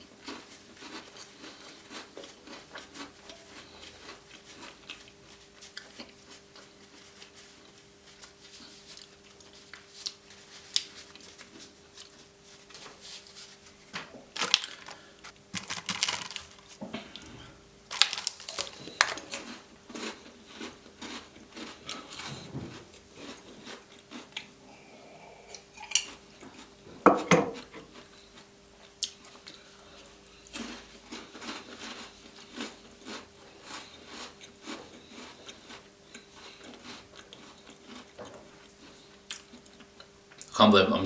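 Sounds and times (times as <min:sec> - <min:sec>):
faint steady hum: 0:00.0 - 0:41.0
tableware clinking and tapping: 0:27.1 - 0:27.6.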